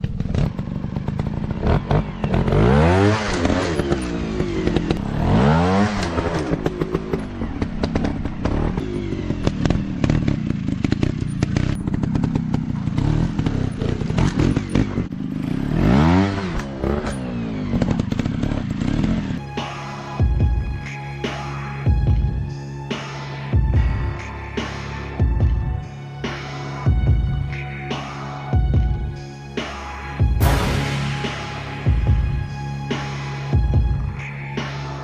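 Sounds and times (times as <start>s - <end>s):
dirt bike engine revving: 0.0s - 19.8s.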